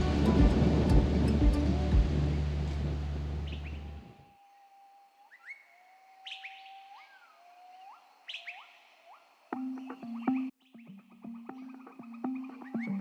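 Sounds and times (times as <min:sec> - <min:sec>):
background music: 0:00.0 - 0:02.9, 0:09.6 - 0:13.0
songbird whistling: 0:05.2 - 0:13.0.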